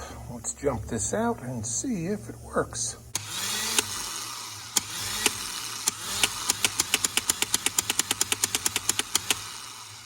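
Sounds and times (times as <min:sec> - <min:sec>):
starter motor whirring: 0:03.1 - 0:10.0
sharp clicks: 0:04.8 - 0:09.5.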